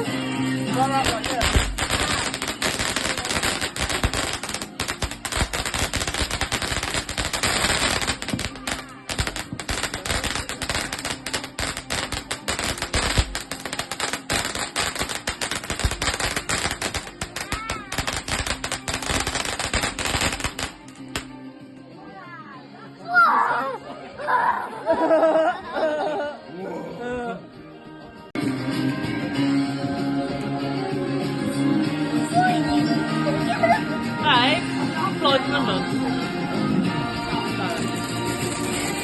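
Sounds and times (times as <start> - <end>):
fireworks crackling and banging: 0.6 - 21.3, 37.4 - 39.0.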